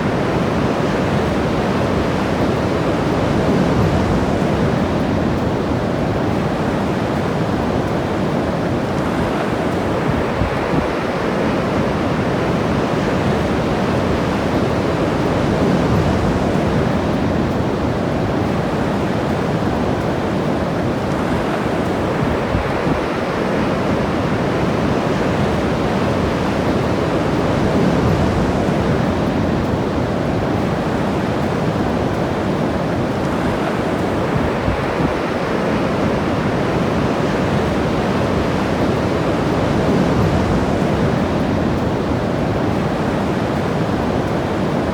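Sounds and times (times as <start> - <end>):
ocean surf breaking on shore: 0.0 - 44.9.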